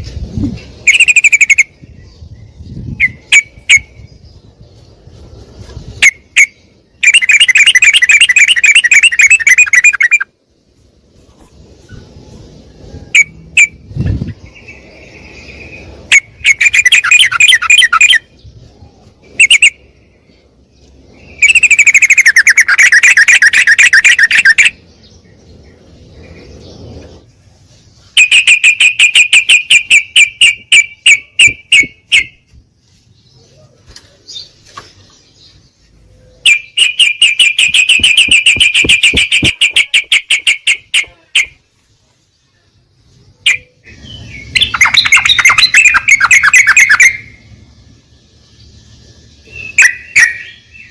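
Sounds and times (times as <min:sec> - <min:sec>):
bird chattering trills: 0:00.3 - 0:04.6, 0:05.7 - 0:10.4, 0:11.8 - 0:20.2, 0:21.0 - 0:25.3, 0:28.0 - 0:32.5, 0:36.3 - 0:41.7, 0:43.4 - 0:50.9.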